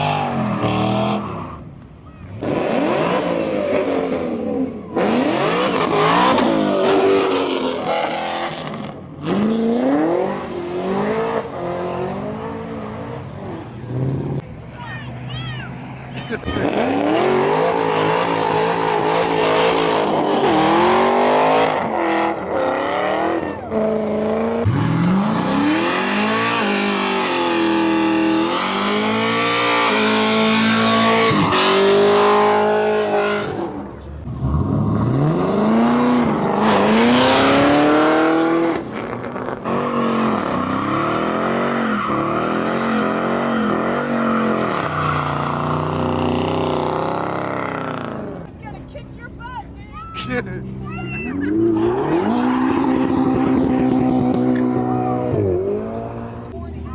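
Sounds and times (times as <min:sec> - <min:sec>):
car engine revving: 0:02.3 - 0:48.6, 0:50.6 - 0:56.7.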